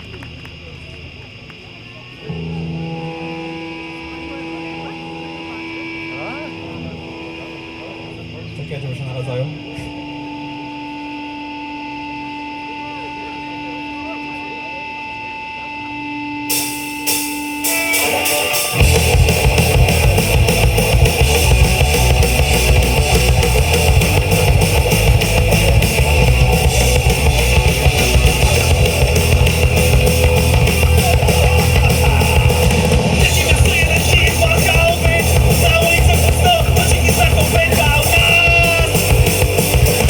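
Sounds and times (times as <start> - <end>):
amplifier hum: 0.0 - 40.0
electric guitar: 0.0 - 40.0
rock band playing: 2.2 - 8.8, 9.6 - 40.0.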